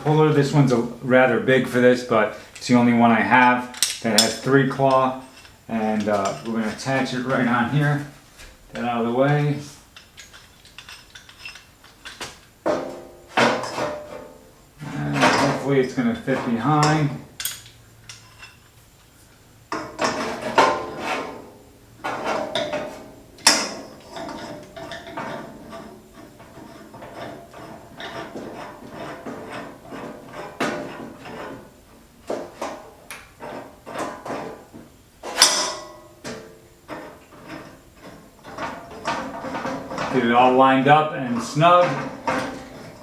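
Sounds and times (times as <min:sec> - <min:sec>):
metal clinks and scrapes: 0:02.3 - 0:43.0
sharp metal clanks: 0:03.6 - 0:07.9, 0:15.1 - 0:18.7, 0:22.0 - 0:25.9, 0:35.2 - 0:40.5.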